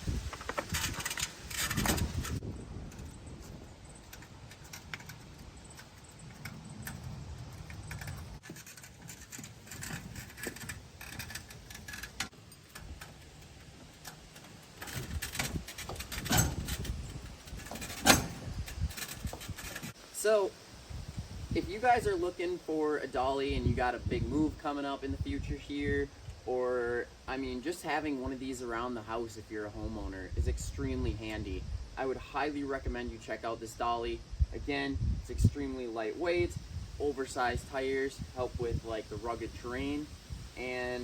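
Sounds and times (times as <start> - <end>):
hand truck rattling and clicking: 0.3 - 20.0.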